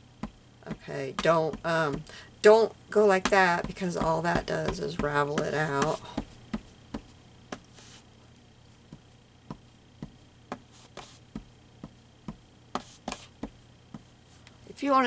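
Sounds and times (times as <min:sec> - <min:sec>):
ink pad tapping on cloth: 0:00.2 - 0:02.1, 0:03.2 - 0:07.7, 0:08.9 - 0:14.1.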